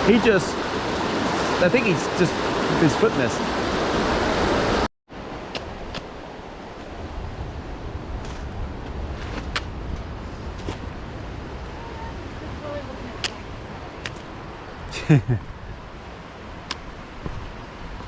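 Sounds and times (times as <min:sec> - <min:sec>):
stream water rushing: 0:00.0 - 0:07.3
wind rumble on microphone: 0:03.4 - 0:18.0.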